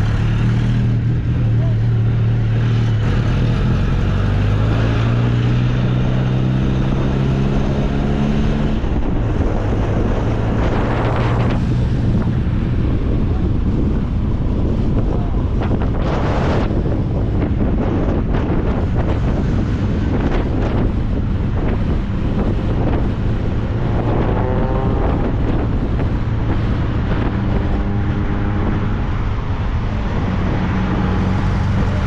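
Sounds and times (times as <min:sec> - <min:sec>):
sports car engine accelerating: 0:00.0 - 0:32.0
wind buffeting microphone: 0:00.0 - 0:32.0.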